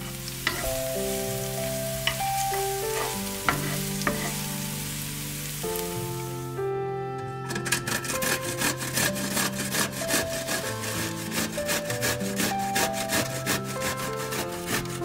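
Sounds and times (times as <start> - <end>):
zucchini rasping on grater: 2.6 - 4.4, 7.6 - 15.0.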